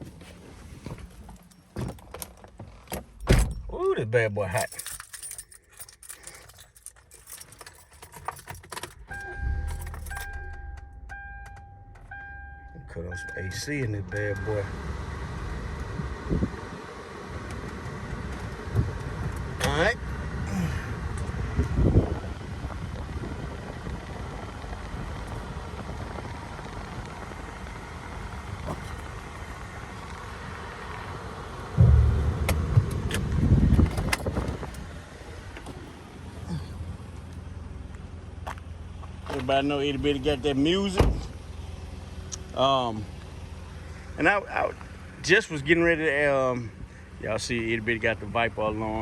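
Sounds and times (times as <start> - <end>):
car engine starting and running: 0.0 - 49.0
car keys jangling: 0.2 - 12.9, 28.5 - 29.5, 33.8 - 36.7
two-tone warning chime: 9.1 - 14.7.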